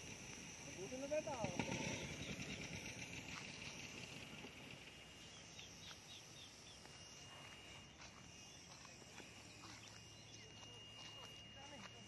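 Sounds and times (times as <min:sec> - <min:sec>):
thin steady high tone: 0:00.0 - 0:12.0
high bird chirps: 0:05.2 - 0:07.0.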